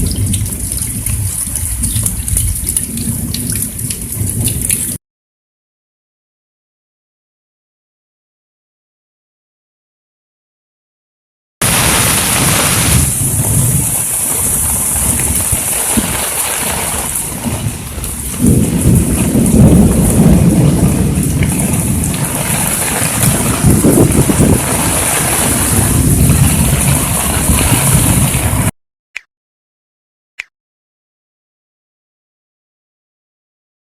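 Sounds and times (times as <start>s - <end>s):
heavy rain pouring: 0.0s - 5.0s, 11.6s - 28.7s.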